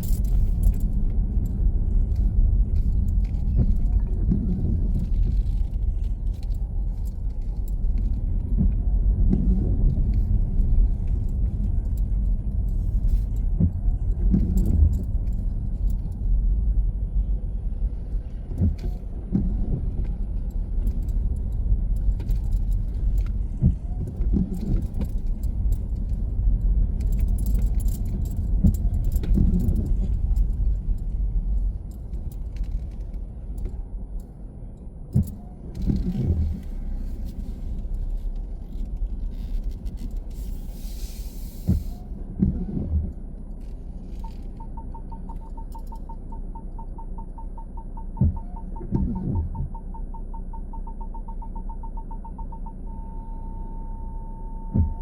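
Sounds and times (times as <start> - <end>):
light clicks and jingling rattles: 0.0 - 8.6, 9.9 - 13.6, 14.2 - 16.4, 20.0 - 42.0
car engine and road rumble: 0.0 - 55.0.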